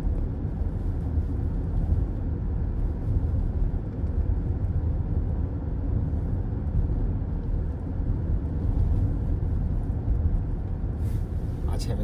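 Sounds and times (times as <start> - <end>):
car road noise rumble: 0.0 - 12.0.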